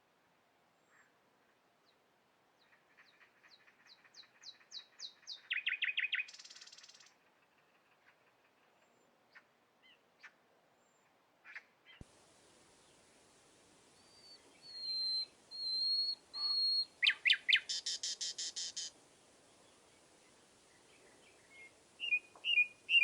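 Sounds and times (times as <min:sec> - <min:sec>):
songbird singing: 0:04.2 - 0:07.1, 0:11.9 - 0:23.0.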